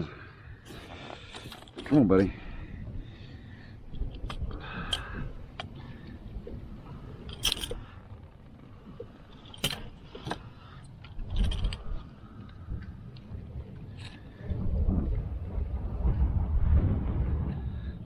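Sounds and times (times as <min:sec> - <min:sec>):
low rumble: 0:02.2 - 0:18.0
sharp clicks and rattles: 0:07.3 - 0:08.0, 0:09.3 - 0:12.0.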